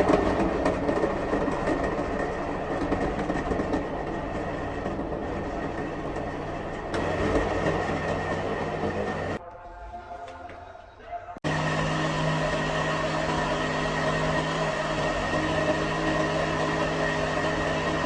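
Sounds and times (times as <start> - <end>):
blender motor whining: 3.6 - 9.4, 11.4 - 18.0.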